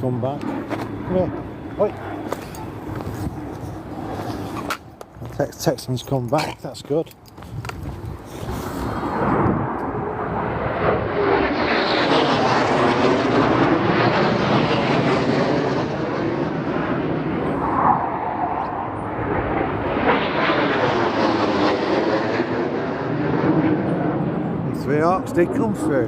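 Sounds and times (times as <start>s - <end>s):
low-flying jet aircraft passing: 0.0s - 26.0s.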